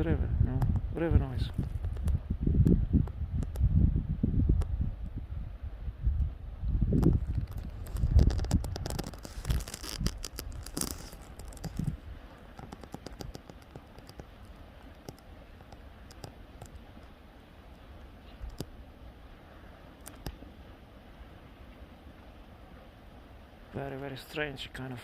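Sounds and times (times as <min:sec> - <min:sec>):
lava crust crackling and clinking: 0:07.0 - 0:16.8.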